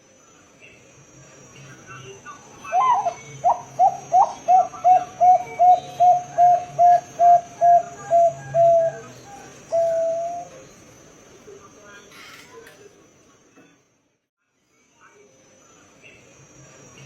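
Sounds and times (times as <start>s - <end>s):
dove cooing: 2.6s - 10.7s.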